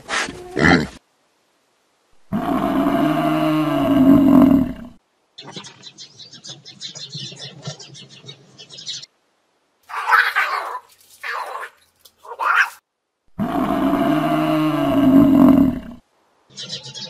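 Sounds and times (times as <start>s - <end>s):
water buffalo mooing: 2.3s - 4.9s, 13.4s - 16.0s.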